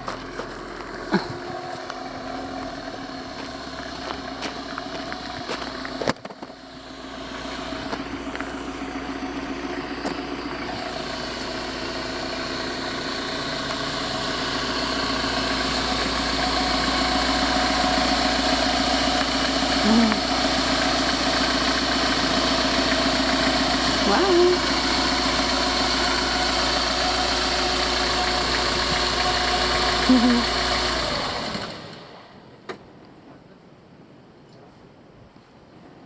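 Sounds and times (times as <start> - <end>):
van engine idling: 0.0 - 33.0.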